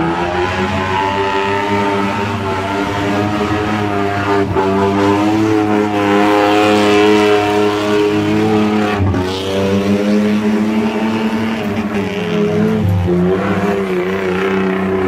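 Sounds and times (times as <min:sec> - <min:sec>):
engine revving hard: 0:00.0 - 0:15.0.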